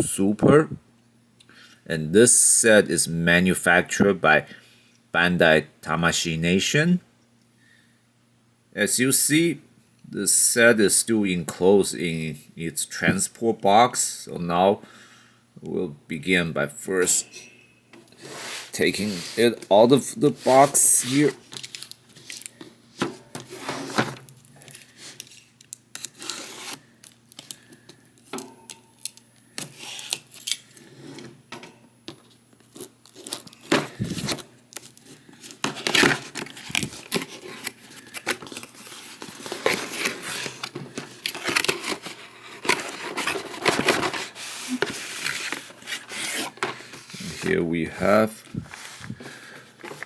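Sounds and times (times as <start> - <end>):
cardboard tearing and rustling: 20.3 - 22.6, 25.9 - 27.6, 32.6 - 47.5.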